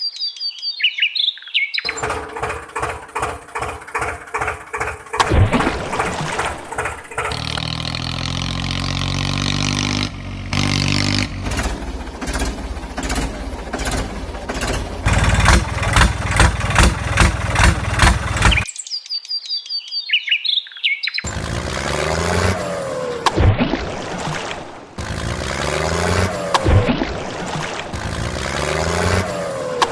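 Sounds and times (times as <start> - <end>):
high bird chirps: 0.0 - 2.2, 18.4 - 21.3
cartoon vehicle engine chugging: 1.9 - 18.7, 21.3 - 23.2, 27.9 - 29.9.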